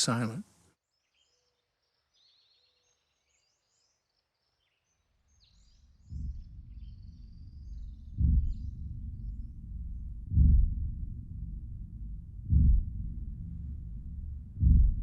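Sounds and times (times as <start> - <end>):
low rumble: 5.9 - 15.0.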